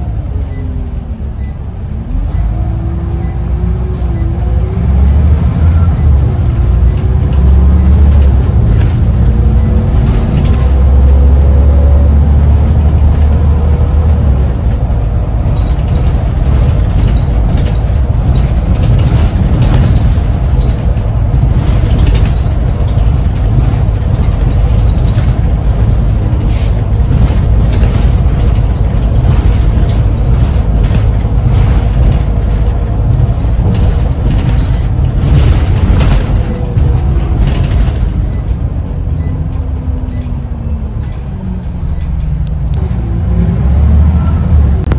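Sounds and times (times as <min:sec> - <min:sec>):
bus engine drone: 0:00.0 - 0:44.9
road rumble: 0:00.0 - 0:44.9
sharp rattles: 0:14.1 - 0:40.2.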